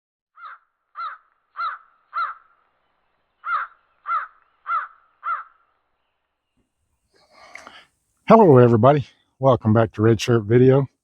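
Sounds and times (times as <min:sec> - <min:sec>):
bird cawing: 0:00.4 - 0:02.6, 0:03.4 - 0:05.8.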